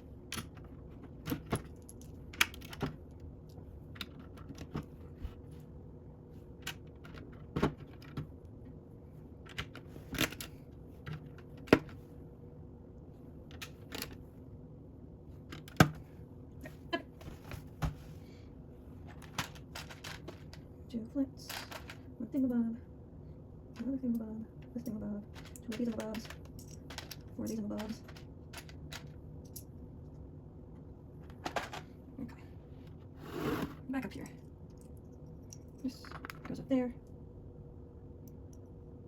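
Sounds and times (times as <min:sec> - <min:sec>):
faint steady hum: 0:00.0 - 0:39.0
plastic bricks clicking and clattering: 0:19.1 - 0:20.6, 0:21.4 - 0:22.1, 0:25.2 - 0:29.2.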